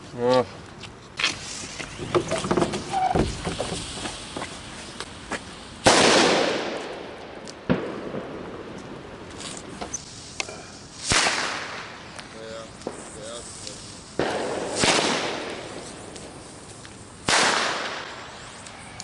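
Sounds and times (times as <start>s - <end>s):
firecrackers popping: 1.2s - 19.0s
loud firework bangs: 5.8s - 13.4s, 14.1s - 18.5s.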